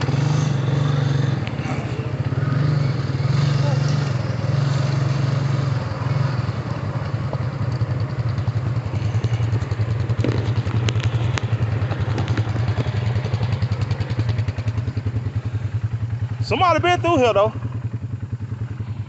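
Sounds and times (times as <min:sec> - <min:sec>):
atv engine idling: 0:00.0 - 0:19.0
sharp clicks: 0:10.2 - 0:12.9.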